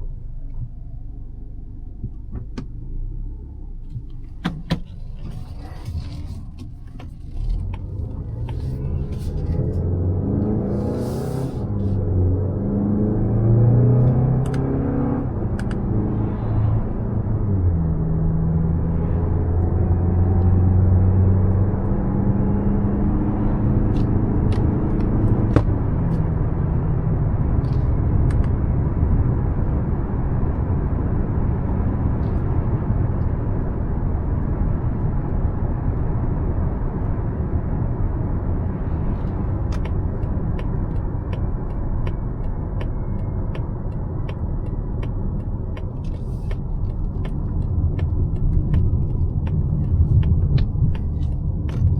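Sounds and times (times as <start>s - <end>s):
car engine accelerating: 0.0s - 51.9s
tyre and road noise: 3.6s - 51.9s
regular ticking: 39.7s - 51.9s.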